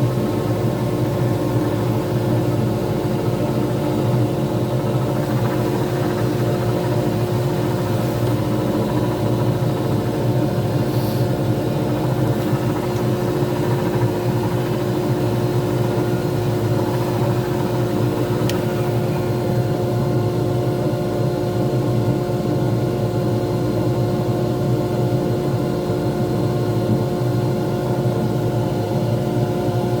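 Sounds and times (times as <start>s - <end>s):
lathe motor hum: 0.0s - 20.1s.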